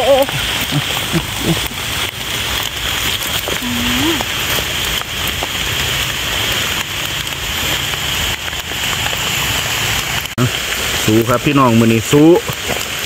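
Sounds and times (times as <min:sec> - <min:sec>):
rain on foliage: 0:00.0 - 0:13.0
wet leaves rustling: 0:00.0 - 0:13.0.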